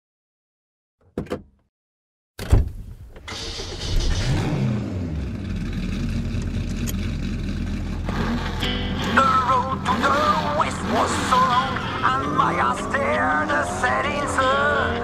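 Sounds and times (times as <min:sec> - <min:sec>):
car engine revving: 0:03.3 - 0:15.0.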